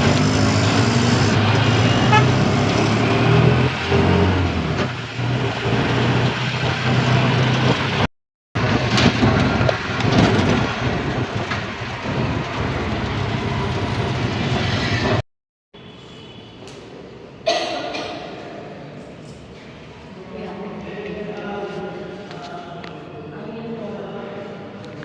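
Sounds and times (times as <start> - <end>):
road traffic: 0.0 - 15.2, 15.8 - 18.2.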